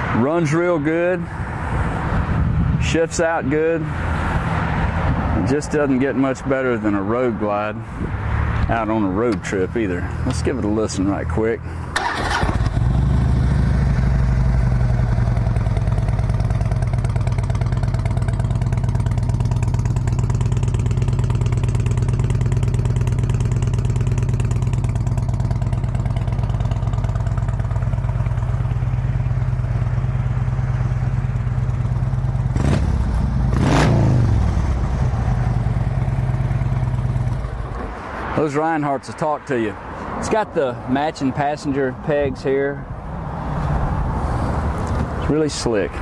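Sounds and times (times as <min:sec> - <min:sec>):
motorcycle engine idling: 0:11.7 - 0:33.6, 0:34.4 - 0:37.7
motorcycle throttle blips: 0:11.9 - 0:29.9.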